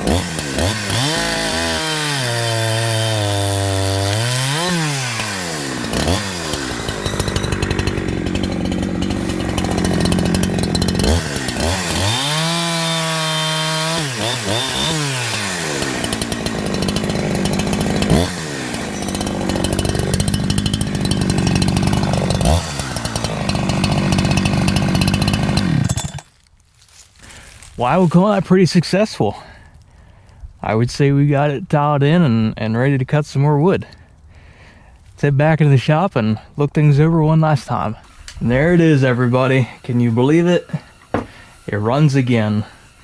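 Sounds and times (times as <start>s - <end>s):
chainsaw cutting log: 0.0s - 26.4s, 37.4s - 43.0s.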